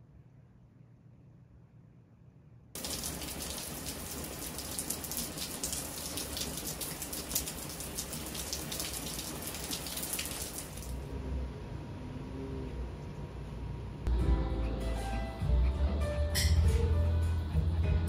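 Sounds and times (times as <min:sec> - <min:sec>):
rain falling hard: 0:02.8 - 0:11.0.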